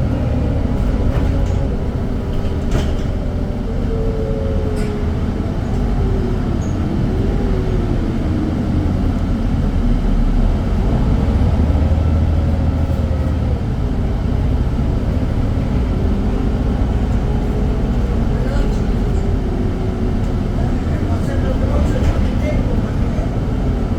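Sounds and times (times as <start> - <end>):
bus engine rumble with whine: 0.0 - 23.9.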